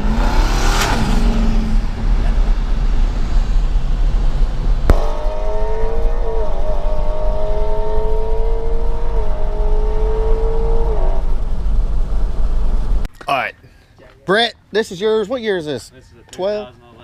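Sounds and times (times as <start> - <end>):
car engine accelerating: 0.0 - 13.1.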